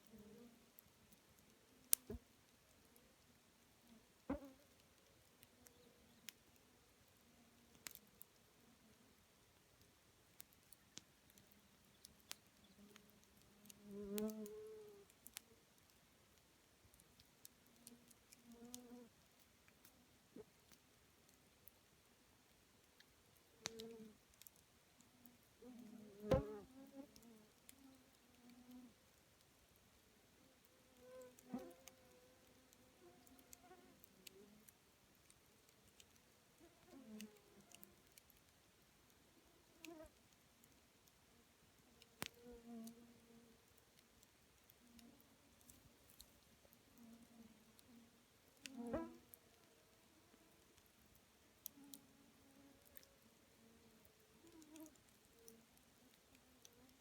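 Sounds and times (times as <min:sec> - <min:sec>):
campfire crackling: 0:00.6 - 0:14.4, 0:19.2 - 0:25.5, 0:27.5 - 0:36.8, 0:37.4 - 0:42.4, 0:43.6 - 0:57.0
campfire crackling and popping: 0:09.8 - 0:14.4, 0:22.8 - 0:24.6.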